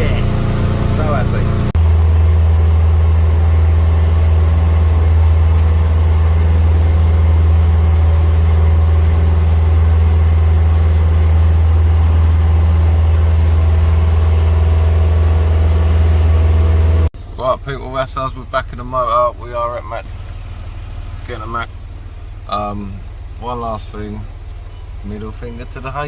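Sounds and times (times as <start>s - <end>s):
water noise: 0.0s - 17.2s
boat engine droning: 0.0s - 26.0s
wind: 17.2s - 26.0s.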